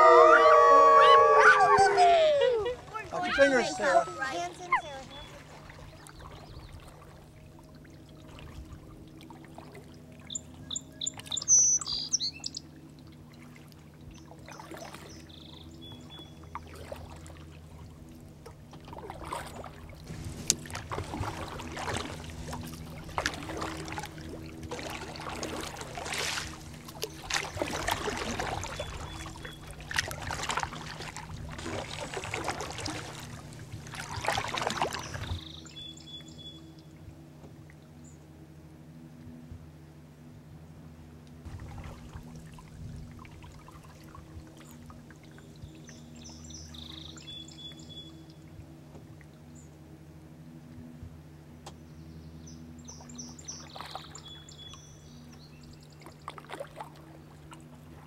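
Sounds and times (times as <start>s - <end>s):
birds chirping: 0.0s - 7.0s, 10.2s - 12.7s, 14.1s - 16.5s, 27.1s - 29.9s, 33.1s - 36.7s, 51.7s - 56.3s
water splashes: 0.0s - 37.9s, 41.4s - 49.6s, 52.8s - 55.3s, 55.9s - 58.0s.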